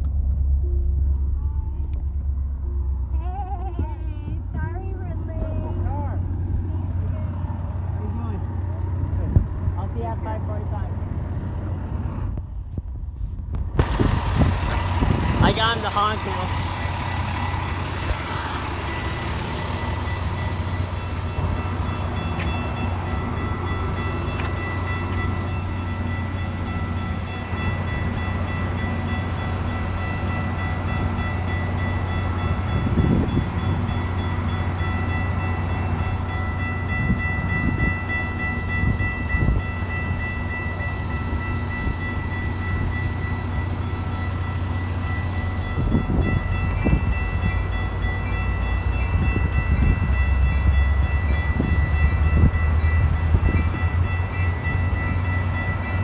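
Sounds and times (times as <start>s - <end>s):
train rumbling: 0.0s - 56.0s
steady high tones: 13.9s - 56.0s.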